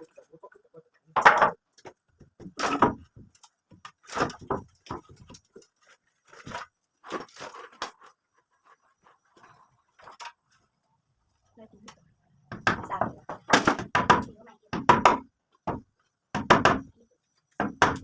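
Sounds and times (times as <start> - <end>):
knocks and scrapes of repair work: 1.1 - 10.8.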